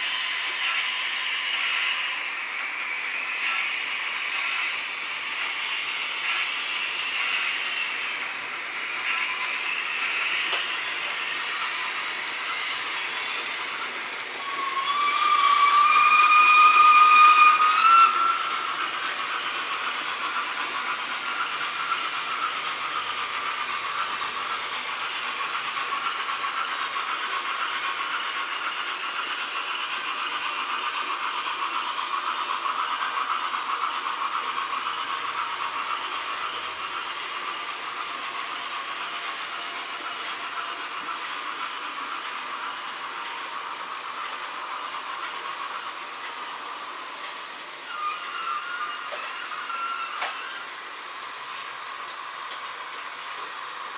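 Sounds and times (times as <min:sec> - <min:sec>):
model trains whirring: 0:00.0 - 0:53.9
steam locomotive whistle: 0:14.4 - 0:18.8.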